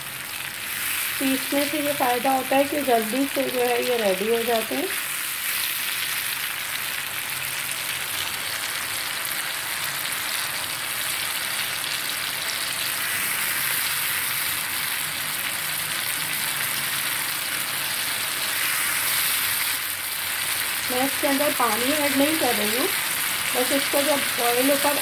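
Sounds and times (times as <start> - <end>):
paste sizzling in hot oil: 0.0 - 25.0.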